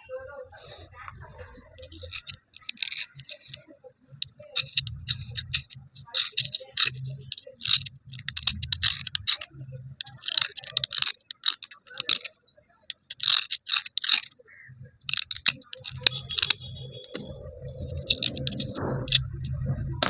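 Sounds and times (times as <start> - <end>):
slate pieces scraping and clinking: 0.6 - 19.6.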